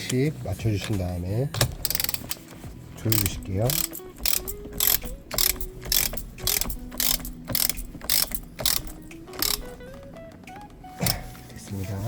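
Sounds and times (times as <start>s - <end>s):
ratchet wrench rattling: 1.6s - 10.0s.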